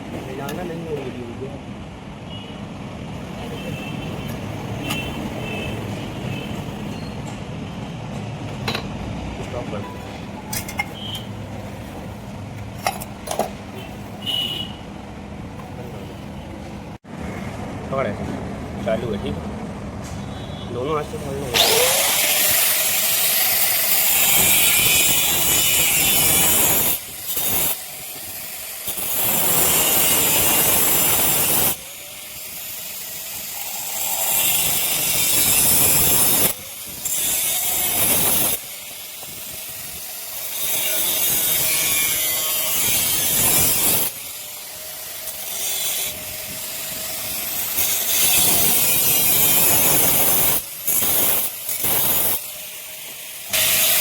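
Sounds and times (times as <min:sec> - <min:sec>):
power tool disc cutting steel: 0:21.0 - 0:54.0.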